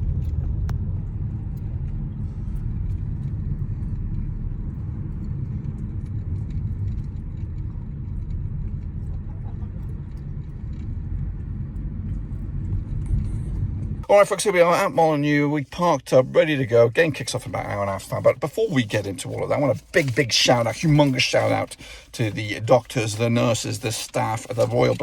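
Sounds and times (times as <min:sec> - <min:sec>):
car road noise rumble: 0:00.0 - 0:25.0.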